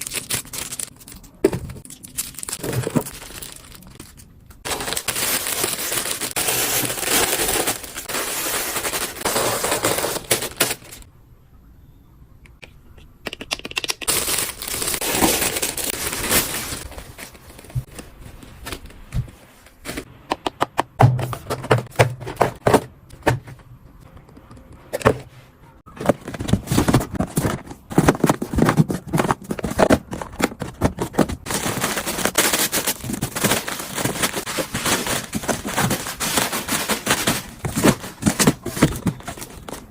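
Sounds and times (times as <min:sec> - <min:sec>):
plastic packaging crinkling: 0:00.0 - 0:11.1, 0:14.0 - 0:19.1, 0:26.0 - 0:39.9
items tapping and knocking: 0:18.6 - 0:25.3, 0:25.9 - 0:31.9, 0:33.3 - 0:39.9.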